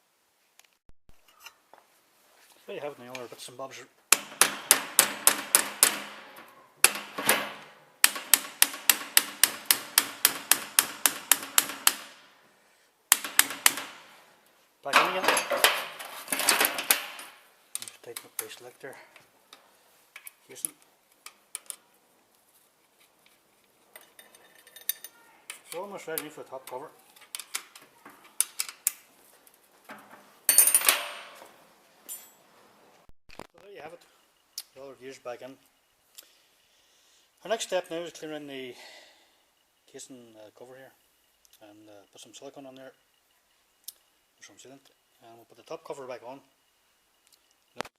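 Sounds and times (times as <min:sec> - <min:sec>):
hammer tapping metal parts: 0:04.1 - 0:12.3, 0:13.1 - 0:14.2, 0:14.9 - 0:18.6, 0:24.0 - 0:29.0
metal tools clinking: 0:14.9 - 0:18.6, 0:23.9 - 0:28.8, 0:29.9 - 0:32.4.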